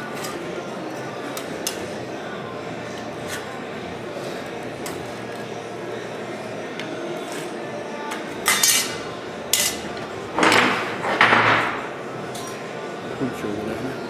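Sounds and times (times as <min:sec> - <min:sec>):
sheet steel scraping: 0:02.7 - 0:05.3, 0:07.2 - 0:13.8
metal clanks: 0:08.1 - 0:12.7.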